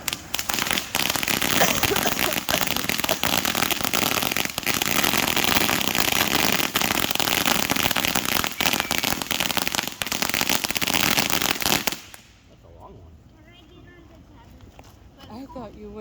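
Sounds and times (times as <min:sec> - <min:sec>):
fireworks bangs: 0:00.0 - 0:12.5
fireworks crackling: 0:00.0 - 0:12.6.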